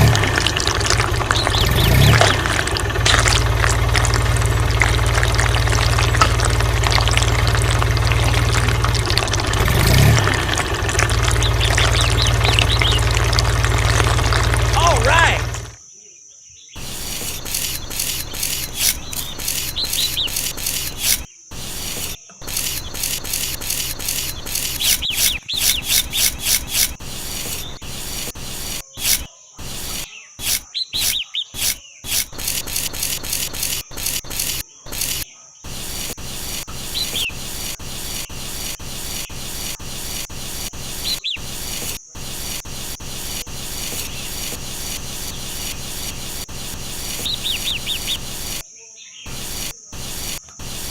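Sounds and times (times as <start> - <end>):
birds chirping: 0.0 - 15.8, 16.6 - 50.9
rapid rubbing or scraping strokes: 16.8 - 48.6, 49.3 - 50.9.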